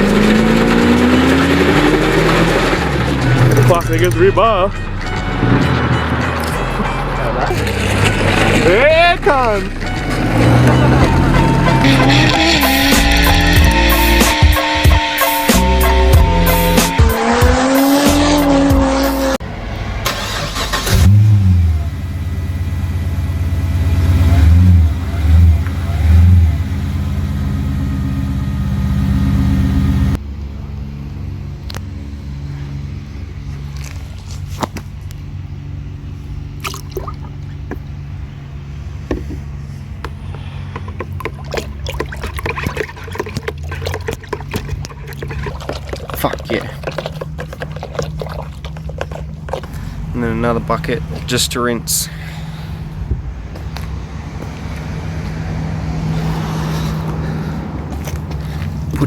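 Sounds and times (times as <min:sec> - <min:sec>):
car engine revving: 0:00.0 - 0:34.0, 0:35.0 - 0:59.0
music: 0:03.1 - 0:07.6, 0:08.5 - 0:19.4.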